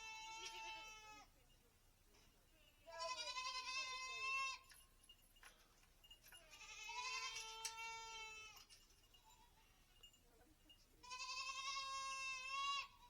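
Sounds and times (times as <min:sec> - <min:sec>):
goat kids bleating: 0:00.0 - 0:01.3, 0:02.8 - 0:04.7, 0:06.4 - 0:08.7, 0:11.0 - 0:13.0.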